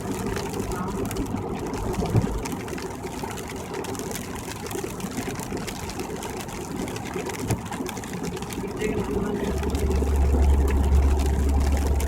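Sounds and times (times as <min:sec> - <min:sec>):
car engine and cabin drone: 0:00.0 - 0:12.0.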